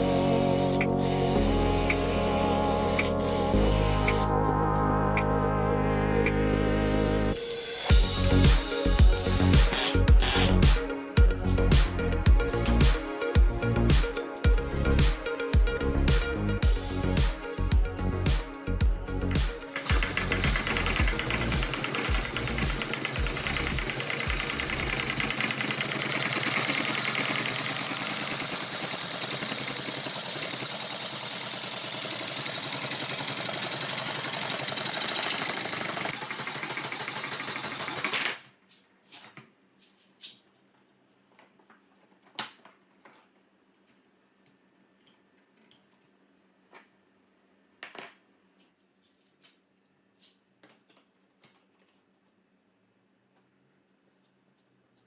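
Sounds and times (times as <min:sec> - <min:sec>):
power tool running: 0:00.0 - 0:04.4, 0:09.1 - 0:10.6, 0:19.7 - 0:38.2.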